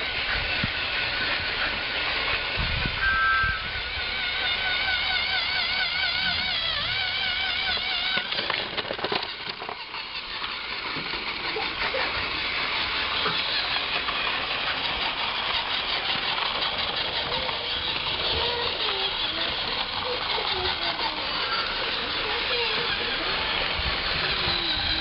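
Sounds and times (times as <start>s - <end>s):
toy train whirring rattle: 0.0s - 25.0s
warbling tone: 2.9s - 7.8s, 12.9s - 25.0s.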